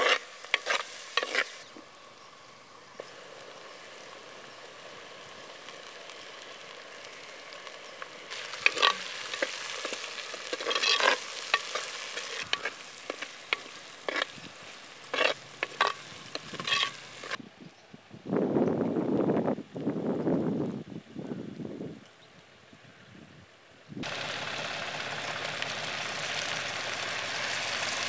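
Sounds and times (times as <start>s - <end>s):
metal ladle scraping a pot: 0.0s - 1.6s, 8.3s - 14.4s, 15.0s - 17.4s
onions sizzling in a pot: 0.0s - 17.4s, 24.0s - 28.0s.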